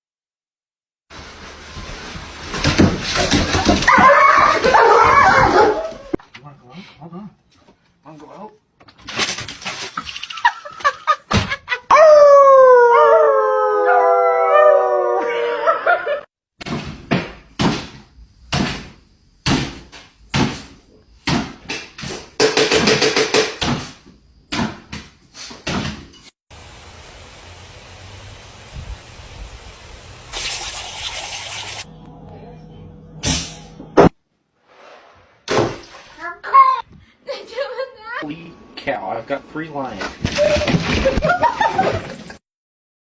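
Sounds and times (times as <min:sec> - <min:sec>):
dog howling: 0:03.8 - 0:06.2, 0:11.9 - 0:16.1
sharp knocks and thuds: 0:16.6 - 0:26.1, 0:35.5 - 0:36.0
steady hiss: 0:26.5 - 0:31.8.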